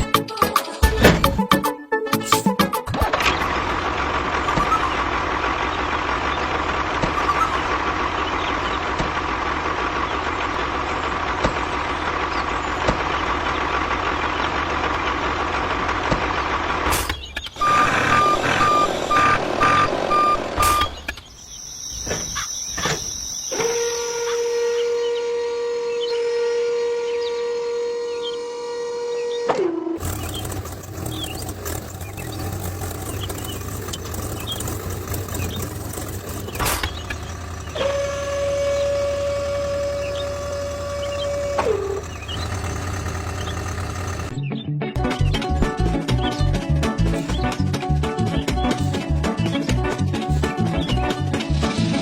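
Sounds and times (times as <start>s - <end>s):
heavy vehicle engine running: 0.0s - 21.3s, 30.0s - 52.0s
reversing beeps: 17.6s - 21.0s.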